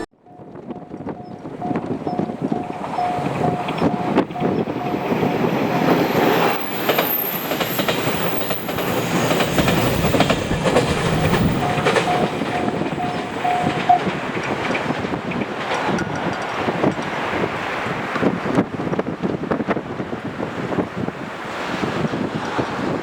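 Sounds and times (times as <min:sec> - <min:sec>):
crossing warning bell ringing: 0:00.0 - 0:17.5
train wheels clattering on rails: 0:00.3 - 0:19.8.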